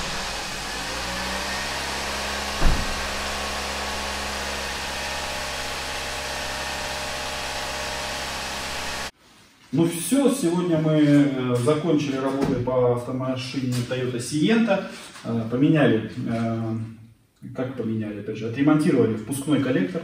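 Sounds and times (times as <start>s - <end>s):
car engine idling: 0.0s - 9.1s
short thump: 2.5s - 3.5s.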